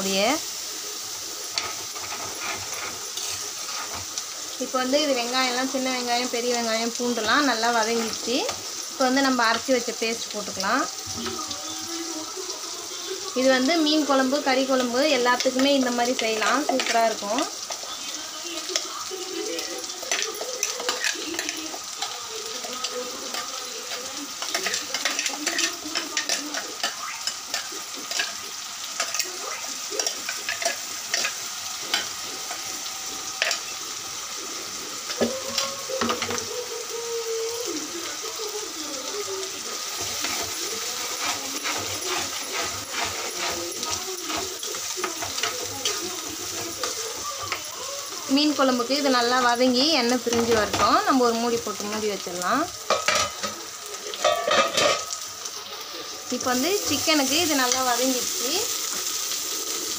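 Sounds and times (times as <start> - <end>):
paste sizzling in a pot: 0.0 - 59.9
metal spoon scraping a pot: 1.5 - 4.2, 19.5 - 32.7, 39.9 - 47.8.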